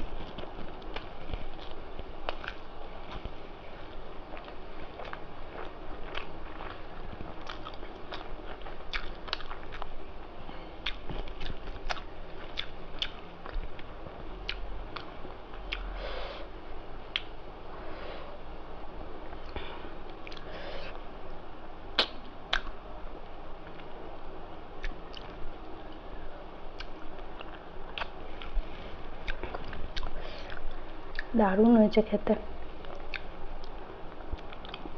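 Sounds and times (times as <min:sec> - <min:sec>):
person chewing with wet smacks: 0:00.1 - 0:10.0, 0:10.8 - 0:15.9, 0:17.1 - 0:17.4, 0:19.4 - 0:20.5, 0:21.9 - 0:22.8, 0:24.8 - 0:25.4, 0:26.7 - 0:31.3, 0:32.8 - 0:34.9.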